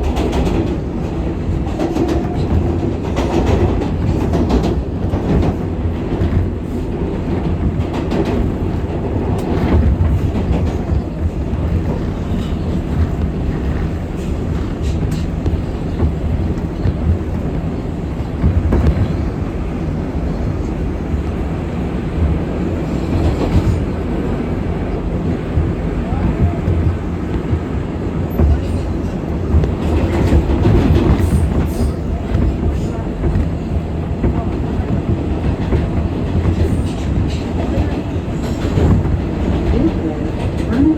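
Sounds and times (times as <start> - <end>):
track clicks and knocks: 0.0 - 19.6
wheels rumbling on rail: 0.0 - 40.9.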